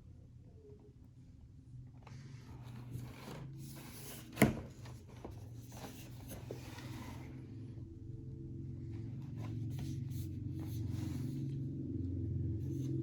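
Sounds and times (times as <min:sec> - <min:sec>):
packaging rustling and scraping: 0:02.4 - 0:07.4.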